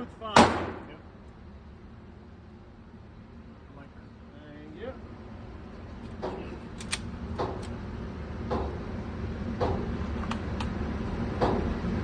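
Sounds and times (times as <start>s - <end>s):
muffled gunshots: 0.4s - 1.0s.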